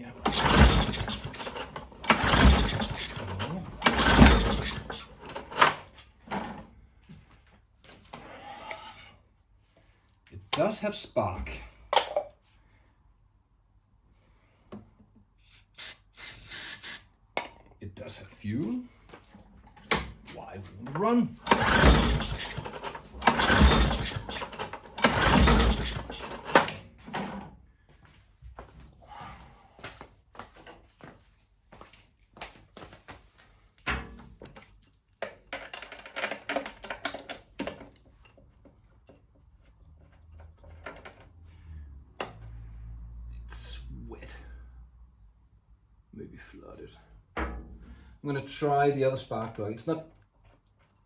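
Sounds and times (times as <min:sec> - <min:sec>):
engine turning over: 0:00.2 - 0:05.6, 0:21.4 - 0:26.8
pull-start cord yanked: 0:00.2 - 0:05.8, 0:21.4 - 0:26.8.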